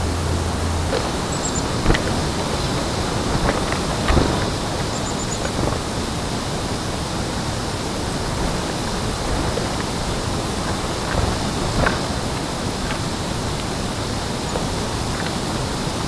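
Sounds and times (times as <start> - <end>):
rushing outdoor background noise: 0.0 - 16.0.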